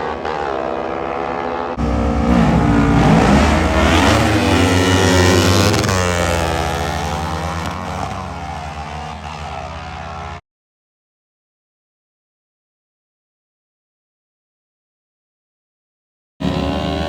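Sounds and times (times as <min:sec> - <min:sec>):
mini bike engines at full throttle: 0:00.0 - 0:10.4, 0:16.4 - 0:17.0.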